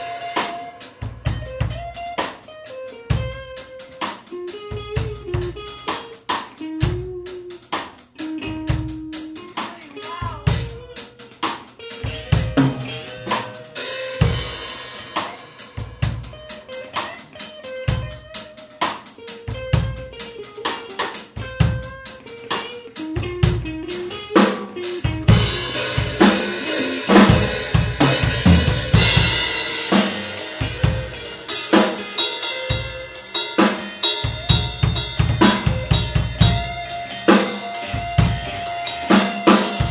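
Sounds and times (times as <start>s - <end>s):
drum kit groove: 0.0s - 39.9s
single-note guitar phrases: 32.2s - 39.9s.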